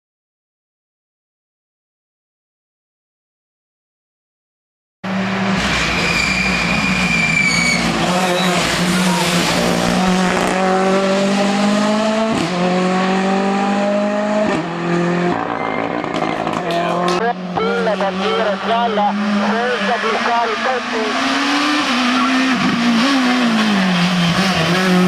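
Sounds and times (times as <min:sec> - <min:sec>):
race car engine at high revs: 0:05.0 - 0:25.0.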